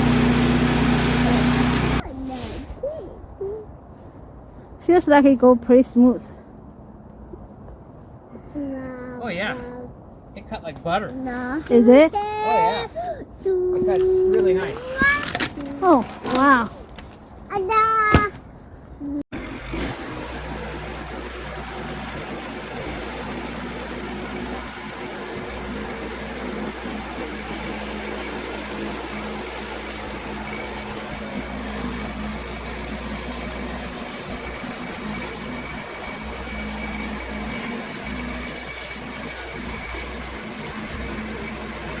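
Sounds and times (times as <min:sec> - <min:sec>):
band sawmill cutting log: 0:00.0 - 0:02.0, 0:19.4 - 0:42.0.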